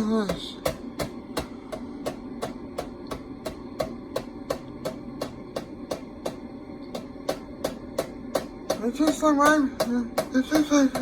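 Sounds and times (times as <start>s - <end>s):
ceiling fan clicking: 0.0s - 11.0s
ceiling fan motor hum: 0.0s - 11.0s.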